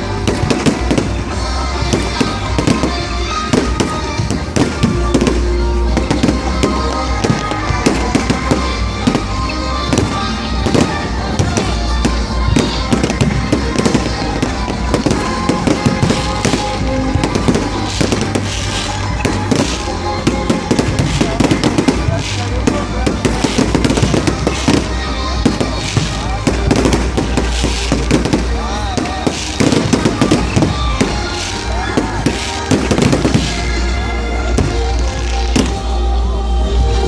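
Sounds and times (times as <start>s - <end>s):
music with deep bass: 0.0s - 37.0s.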